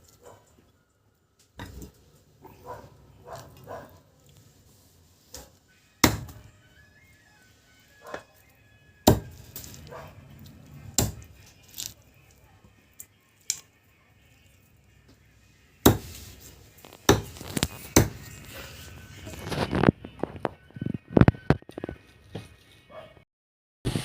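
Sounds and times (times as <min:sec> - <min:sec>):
blade chopping meat: 0:06.0 - 0:06.4, 0:09.0 - 0:09.8, 0:10.8 - 0:11.9, 0:15.8 - 0:16.2, 0:17.0 - 0:18.2.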